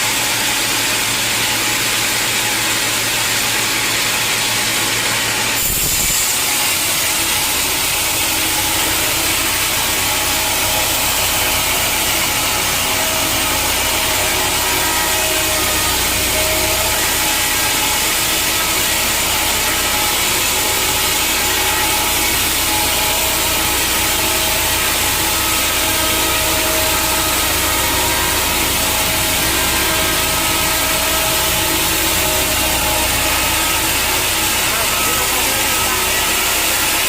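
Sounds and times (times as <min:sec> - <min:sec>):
saw cutting through log: 0:00.0 - 0:37.0
low machinery hum: 0:04.4 - 0:37.0.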